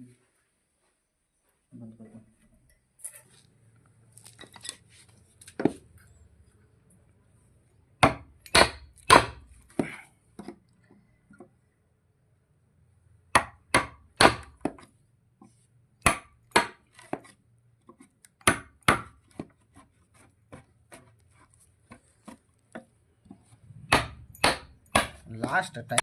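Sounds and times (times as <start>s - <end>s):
hammer striking wood: 8.0s - 9.9s, 13.3s - 14.9s, 16.0s - 17.2s, 18.4s - 19.5s, 23.8s - 26.0s.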